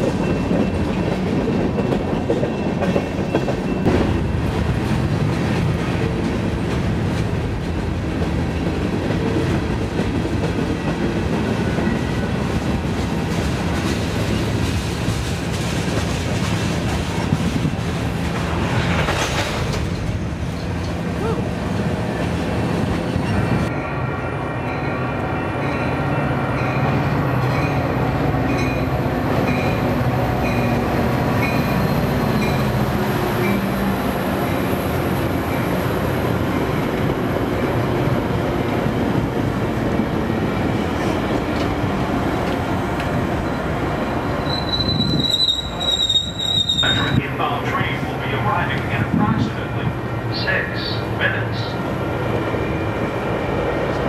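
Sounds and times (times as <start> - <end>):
freight train rolling past: 0.0 - 54.0
high wheel squeal: 44.4 - 47.2.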